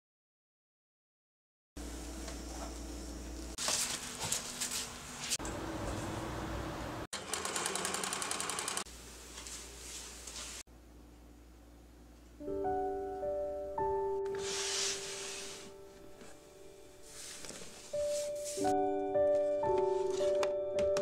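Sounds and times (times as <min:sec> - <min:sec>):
sewing machine stitching: 0:07.2 - 0:08.9.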